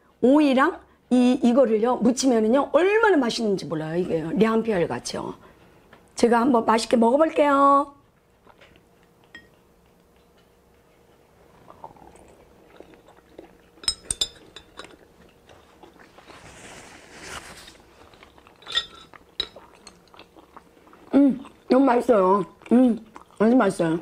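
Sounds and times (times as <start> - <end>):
soft chewing: 8.0 - 24.0.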